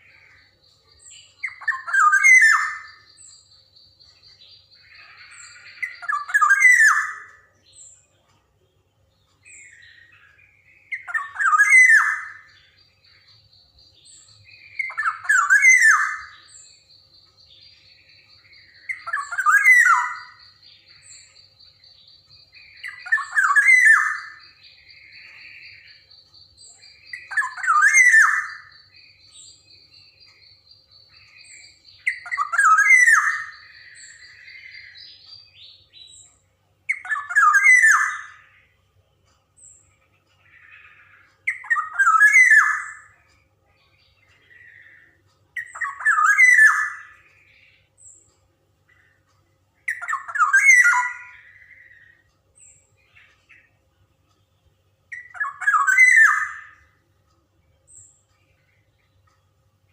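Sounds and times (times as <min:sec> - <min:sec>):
bird harsh descending calls: 0:01.4 - 0:03.2, 0:10.9 - 0:12.6, 0:18.6 - 0:20.4, 0:49.9 - 0:52.2, 0:55.2 - 0:56.9.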